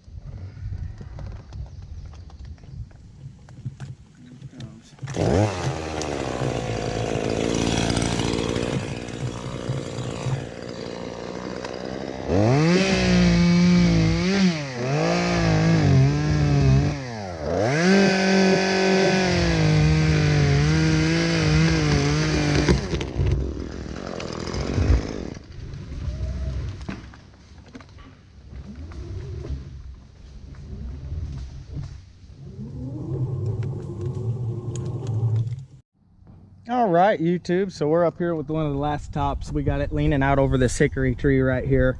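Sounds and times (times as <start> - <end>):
chainsaw idling and revving: 5.0 - 25.4.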